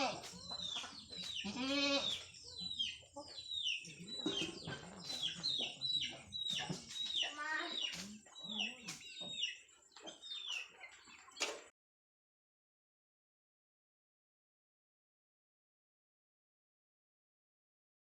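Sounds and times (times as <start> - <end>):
chickens cheeping: 0.0 - 11.7
chickens clucking: 0.0 - 11.7.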